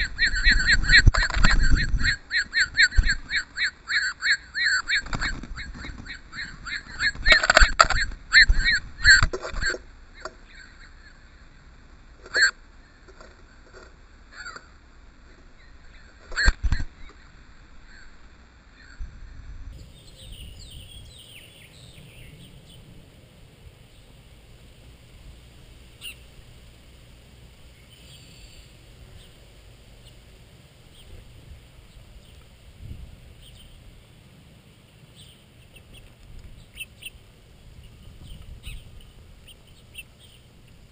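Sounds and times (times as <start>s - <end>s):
short bird calls: 0.0s - 11.6s, 12.2s - 13.0s, 14.3s - 14.8s, 26.0s - 26.4s, 35.1s - 37.2s, 37.8s - 40.5s
small birds chirping: 0.0s - 13.6s, 14.2s - 19.1s, 19.7s - 40.9s
faint low rumble: 0.0s - 40.9s.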